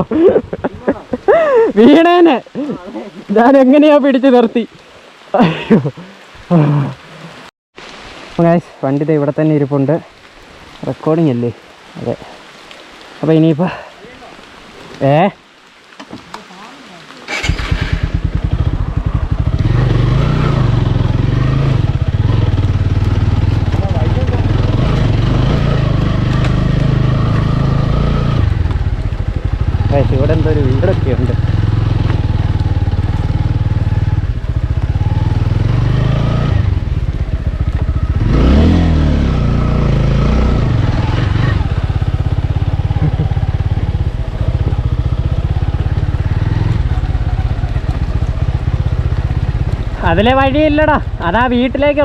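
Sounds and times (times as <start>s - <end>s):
motorcycle engine idling: 17.3s - 27.4s, 28.4s - 35.8s, 36.6s - 38.3s, 40.8s - 52.0s.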